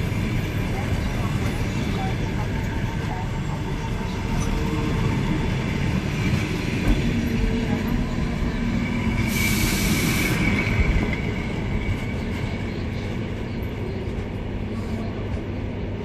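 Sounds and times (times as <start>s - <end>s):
train wheels rumbling on rails: 0.0s - 16.0s
hiss: 9.2s - 10.8s.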